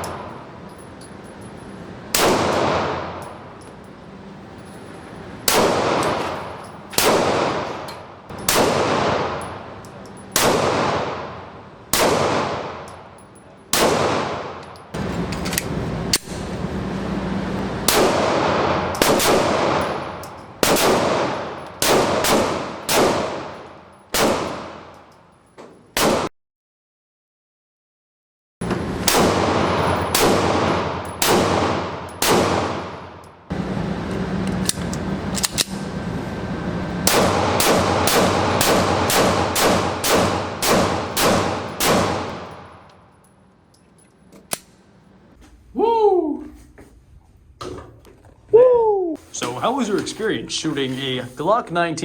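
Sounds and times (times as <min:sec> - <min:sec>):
gunshots with echo: 0:02.1 - 0:03.2, 0:05.5 - 0:09.8, 0:10.4 - 0:13.1, 0:13.7 - 0:15.0, 0:17.8 - 0:24.9, 0:29.0 - 0:33.2, 0:37.0 - 0:42.9.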